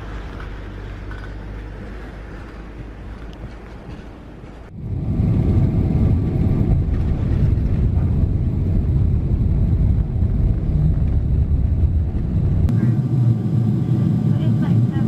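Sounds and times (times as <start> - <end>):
airliner cabin engine rumble: 0.0 - 15.0
low hum: 0.0 - 15.0.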